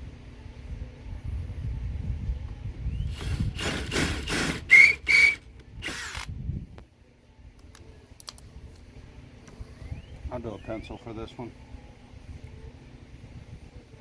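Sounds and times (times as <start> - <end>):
cordless drill drilling into wood: 3.1 - 6.3.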